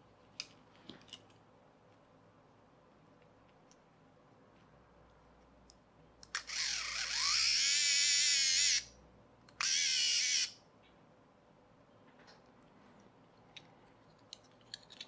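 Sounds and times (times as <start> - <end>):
toy electric motor whirring: 6.3 - 8.9, 9.6 - 10.6.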